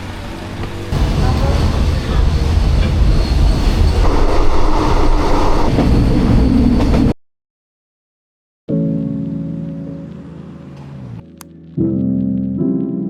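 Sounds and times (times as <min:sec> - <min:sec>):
passenger train on track: 0:00.0 - 0:07.2.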